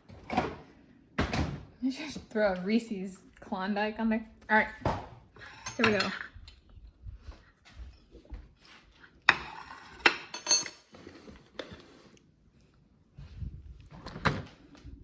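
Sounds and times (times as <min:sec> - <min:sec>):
dishes and cutlery clinking: 0:05.4 - 0:06.3.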